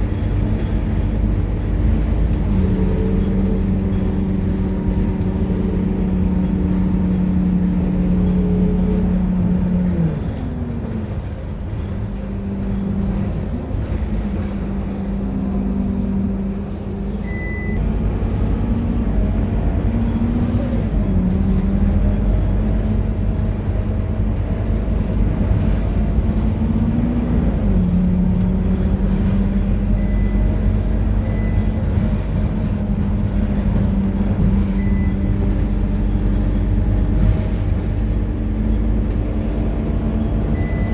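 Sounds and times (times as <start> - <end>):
bus engine drone: 0.0 - 40.9
short electronic beeps: 17.2 - 17.8, 30.0 - 30.6, 31.2 - 31.8, 34.7 - 35.5, 40.5 - 40.9.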